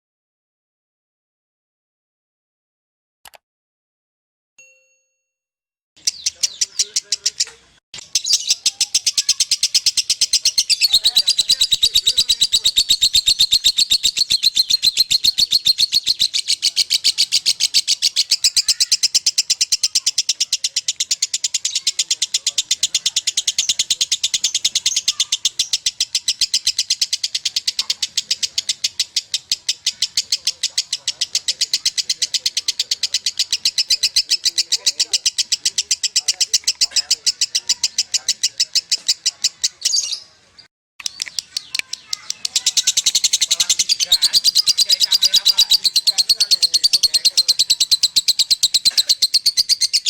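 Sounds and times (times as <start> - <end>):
lovebird chattering: 6.0 - 40.3, 41.0 - 50.0.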